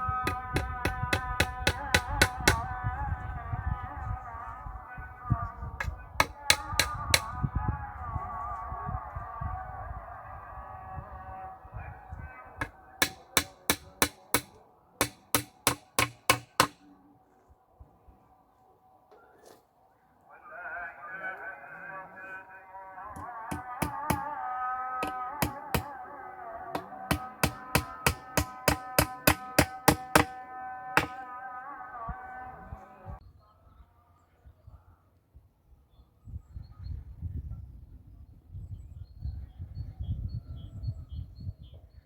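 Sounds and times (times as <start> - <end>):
hammer striking wood: 0.2 - 2.6, 6.2 - 7.3, 12.6 - 16.8, 23.2 - 24.3, 25.0 - 25.9, 26.7 - 30.4, 31.0 - 31.2.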